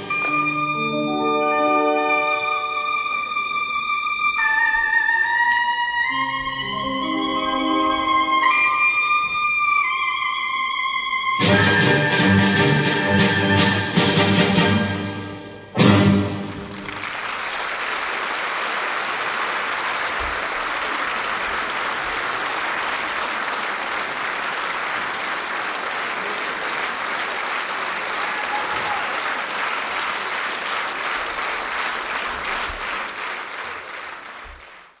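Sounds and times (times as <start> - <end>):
audience applauding: 15.8 - 35.0.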